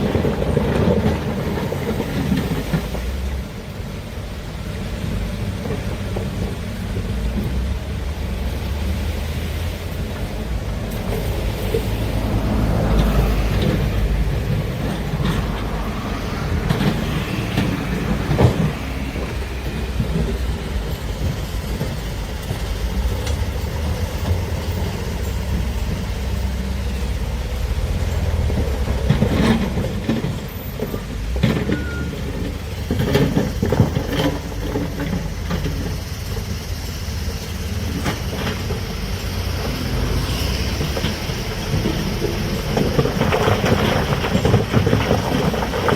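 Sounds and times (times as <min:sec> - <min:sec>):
diesel engine running under load: 0:00.0 - 0:45.9
machine knocks and clanks: 0:12.8 - 0:26.4.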